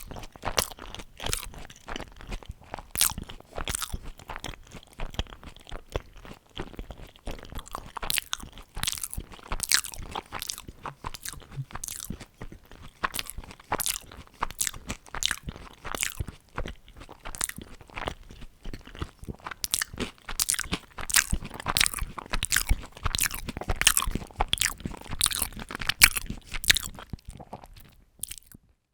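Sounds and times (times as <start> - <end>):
crunchy chewing: 0.0 - 28.6.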